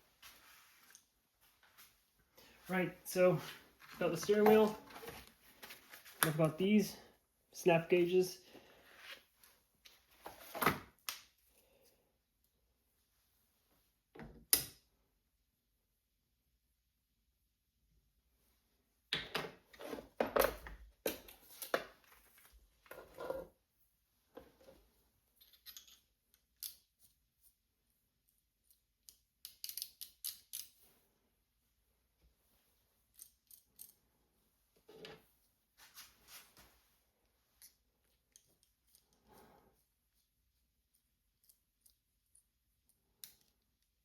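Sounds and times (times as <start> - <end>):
small metal tools clicking and scraping: 25.4 - 26.9, 28.6 - 30.8, 33.1 - 34.0, 41.3 - 43.9.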